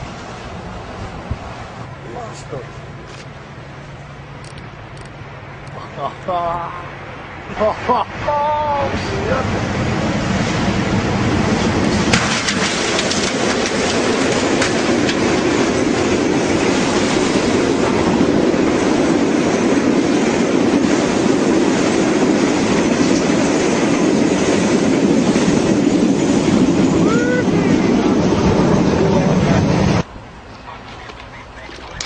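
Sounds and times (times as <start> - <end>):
train wheels rumbling on rails: 7.7 - 30.1.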